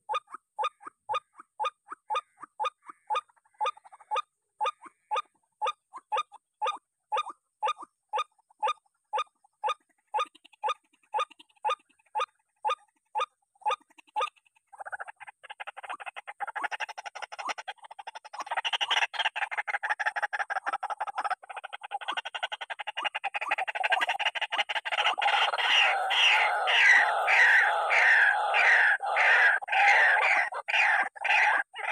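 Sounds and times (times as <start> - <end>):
waterhen calling: 18.6 - 31.9.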